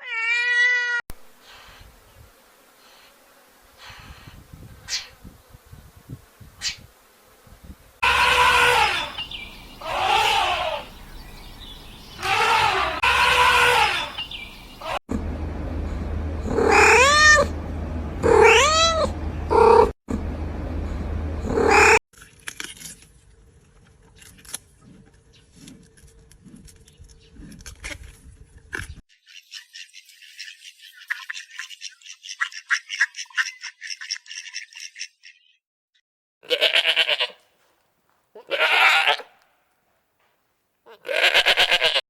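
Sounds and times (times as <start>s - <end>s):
cat meowing: 0.0s - 1.0s, 18.3s - 19.1s, 38.4s - 39.2s.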